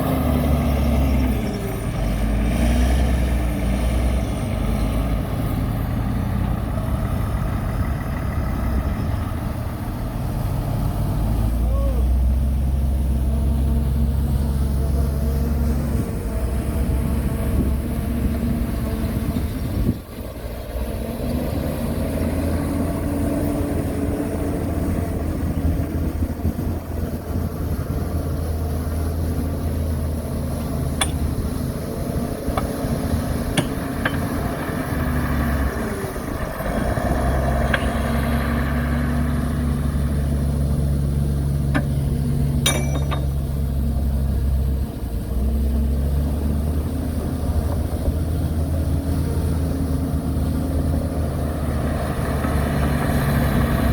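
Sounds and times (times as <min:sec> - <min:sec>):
diesel machinery engine drone: 0:00.0 - 0:53.9
sharp metallic clanks: 0:30.6 - 0:31.6, 0:33.4 - 0:34.5, 0:41.7 - 0:43.5.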